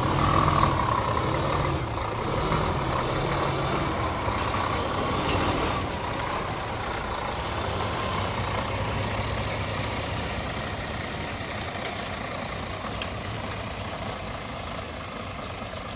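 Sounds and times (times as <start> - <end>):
truck diesel engine running: 0.0 - 15.9.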